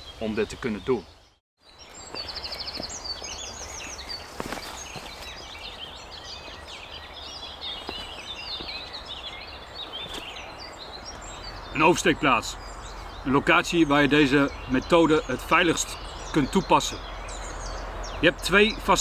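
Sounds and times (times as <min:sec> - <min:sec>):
songbirds singing and chirping: 0:00.0 - 0:19.0
footsteps on stone: 0:02.0 - 0:05.7, 0:07.7 - 0:09.0, 0:09.8 - 0:10.4.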